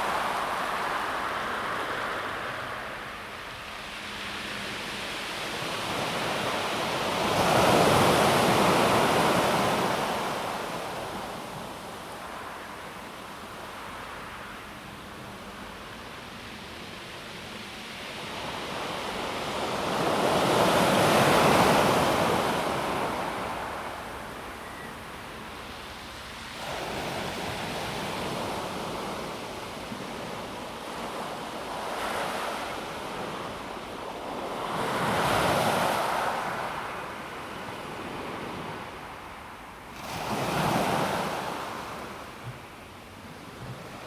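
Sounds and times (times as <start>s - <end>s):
waves on a pebble beach: 39.9s - 42.2s.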